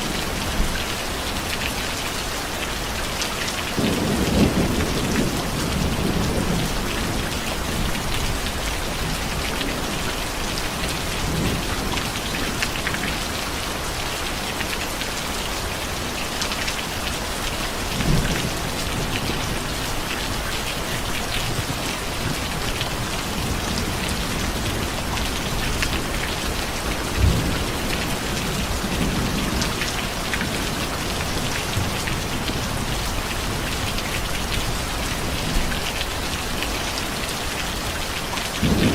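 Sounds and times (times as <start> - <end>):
rain falling on a surface: 0.0 - 38.9
thunder rumble: 38.6 - 38.9.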